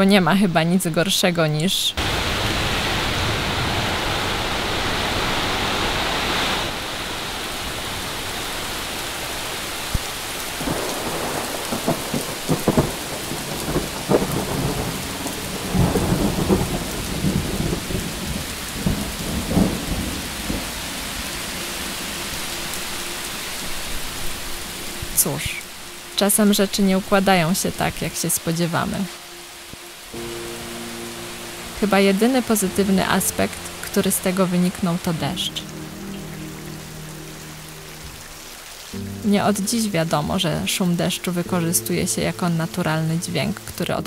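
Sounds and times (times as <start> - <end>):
heavy rain: 2.0 - 44.0
thunder rumbling: 9.8 - 23.0.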